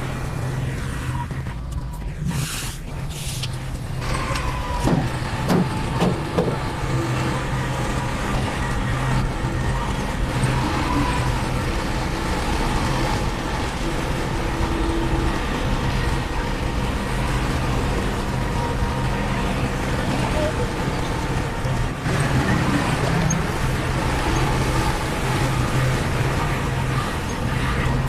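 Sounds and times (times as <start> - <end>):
diesel engine running: 0.0 - 28.0
sharp metallic knocks: 4.8 - 6.6.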